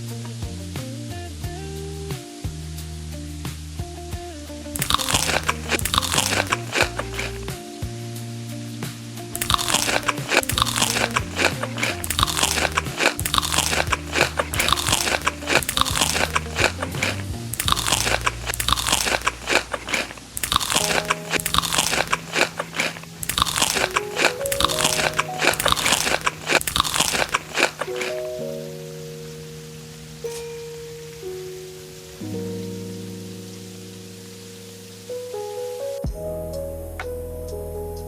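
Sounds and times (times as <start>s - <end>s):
crunchy food being chewed: 4.8s - 7.6s, 9.4s - 28.3s.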